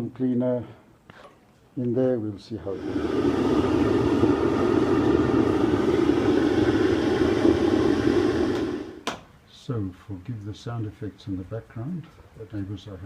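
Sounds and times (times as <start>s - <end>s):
vacuum cleaner blower humming: 2.7s - 9.1s.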